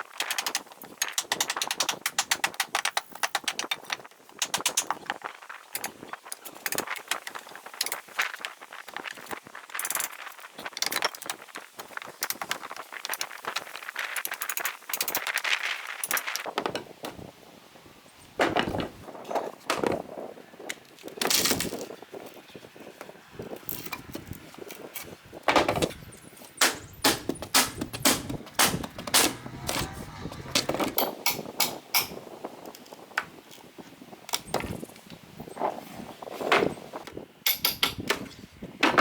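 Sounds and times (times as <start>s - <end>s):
boards being handled: 18.4s - 20.2s, 23.6s - 32.2s
hammering on wood: 26.6s - 31.0s.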